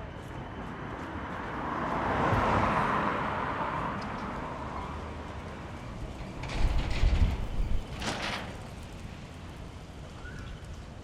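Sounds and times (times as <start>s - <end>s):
wind on microphone: 6.4s - 8.2s.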